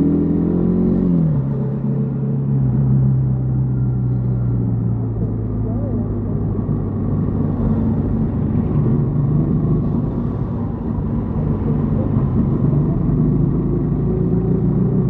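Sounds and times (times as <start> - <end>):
motorcycle engine running: 4.7 - 15.0.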